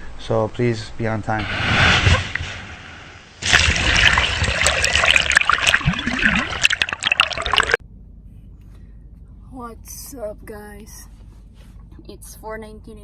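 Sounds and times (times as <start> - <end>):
water splashing and trickling: 3.4 - 7.8.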